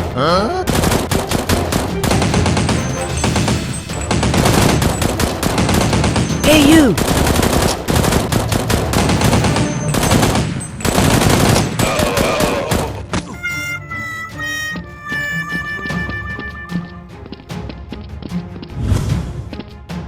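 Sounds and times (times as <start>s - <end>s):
automatic gunfire: 0.7s - 13.0s.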